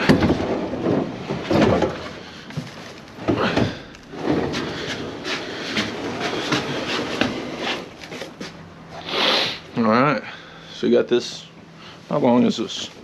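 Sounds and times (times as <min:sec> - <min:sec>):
furniture knocking and scraping: 0:00.0 - 0:08.6.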